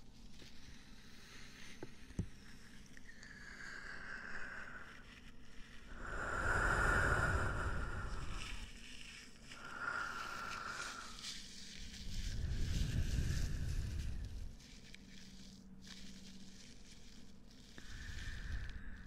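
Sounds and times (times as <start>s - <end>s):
rubbing and scratching on microphone: 10.2s - 19.0s.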